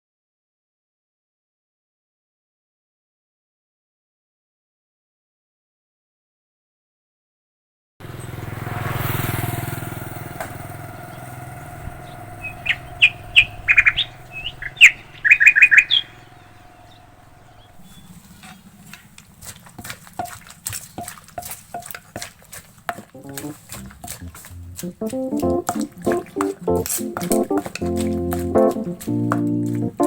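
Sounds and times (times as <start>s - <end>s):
vehicle passing: 8.0s - 21.7s, 23.0s - 30.0s
bird chirping: 11.1s - 19.4s.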